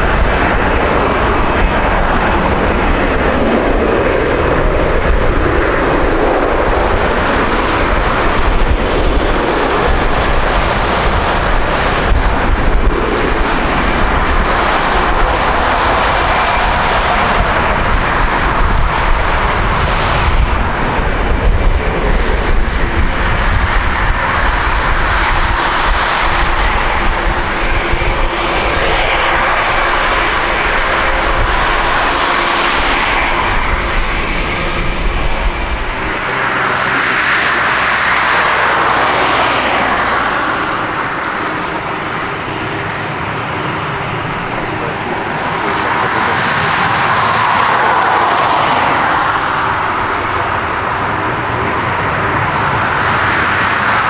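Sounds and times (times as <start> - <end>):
jet engines rushing: 0.0 - 54.0
faint high whine: 9.6 - 37.0.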